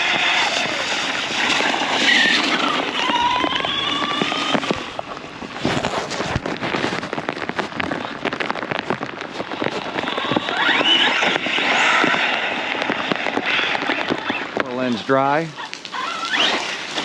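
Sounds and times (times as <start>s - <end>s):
electric motor whine: 0.0s - 5.2s, 16.0s - 17.0s
rc truck splashing through water: 16.0s - 17.0s.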